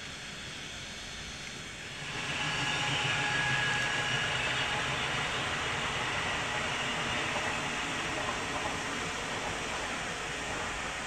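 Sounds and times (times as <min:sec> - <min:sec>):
hiss of train wheels on rail: 0:00.0 - 0:11.0.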